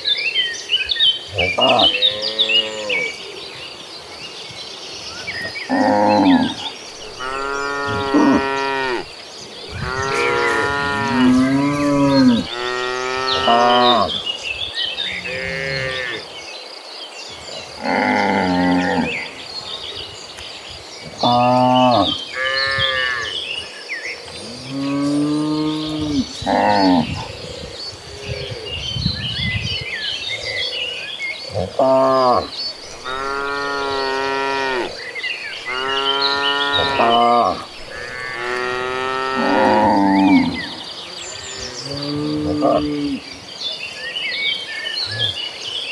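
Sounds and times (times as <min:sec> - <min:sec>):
cattle mooing: 0:05.7 - 0:09.1, 0:09.7 - 0:14.2, 0:31.6 - 0:40.8.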